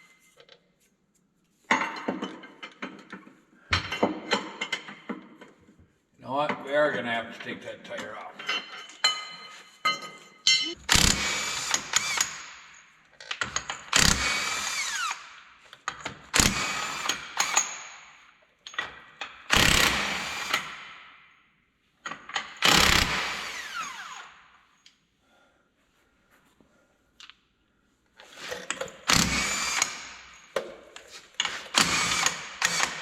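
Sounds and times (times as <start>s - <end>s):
impact wrench spinning: 19.5s - 20.8s, 22.5s - 24.3s, 28.4s - 30.6s, 31.4s - 33.0s.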